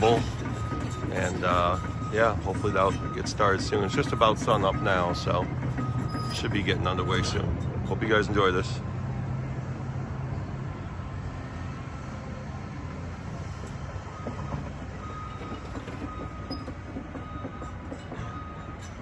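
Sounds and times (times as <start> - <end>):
faint reversing beeper: 0.0 - 7.7, 11.9 - 19.0
diesel engine rumbling: 0.0 - 19.0.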